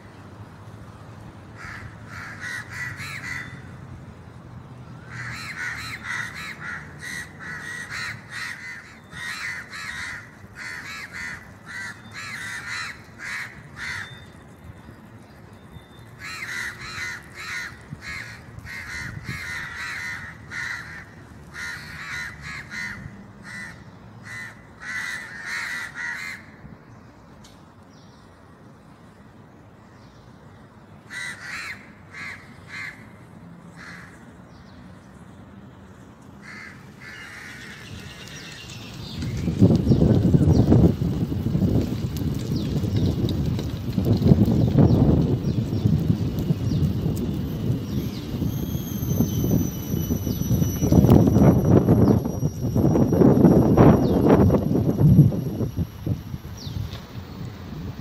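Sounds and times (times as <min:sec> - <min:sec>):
birds giving rapid harsh calls: 0:05.0 - 0:14.4, 0:16.0 - 0:26.6, 0:36.4 - 0:41.4.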